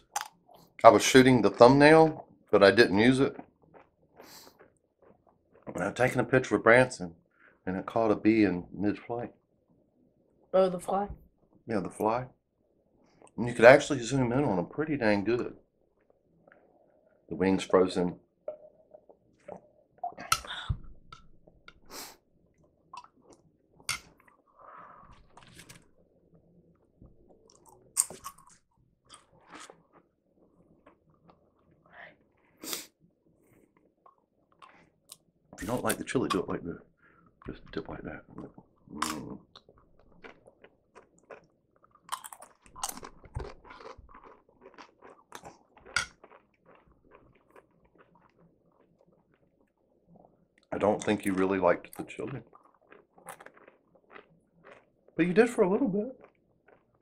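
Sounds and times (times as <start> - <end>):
mouth clicks and smacks: 0.0 - 0.9, 18.5 - 22.0, 37.4 - 54.9
chewing and wet mouth sounds: 0.0 - 1.0, 2.1 - 6.3, 15.8 - 17.2, 18.5 - 57.0.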